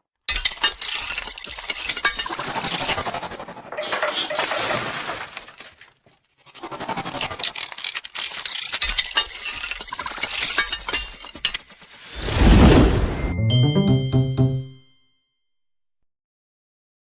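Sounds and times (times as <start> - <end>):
glass shards clinking: 7.8 - 12.3.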